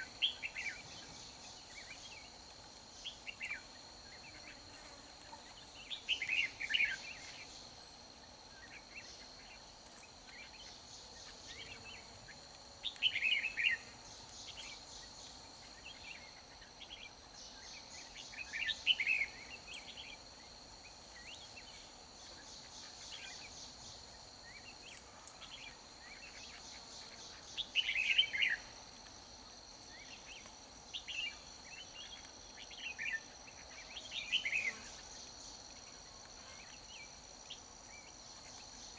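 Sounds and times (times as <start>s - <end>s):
insects buzzing: 0.0s - 38.9s
bird singing bright phrases: 12.8s - 20.2s, 25.5s - 28.6s.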